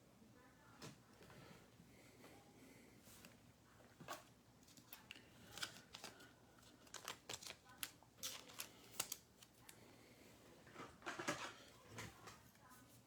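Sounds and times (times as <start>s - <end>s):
trading cards clicking and rustling: 4.7s - 9.6s.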